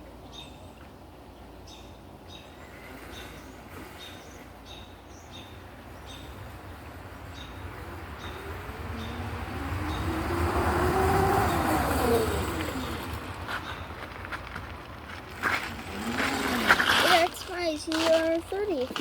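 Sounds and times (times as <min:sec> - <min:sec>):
electric dirt bike motor whine: 0:07.1 - 0:13.3, 0:15.5 - 0:17.1.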